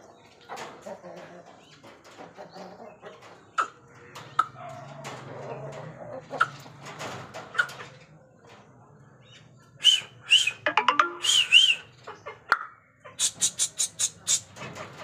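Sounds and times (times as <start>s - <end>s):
high bird chirps: 10.5s - 11.9s.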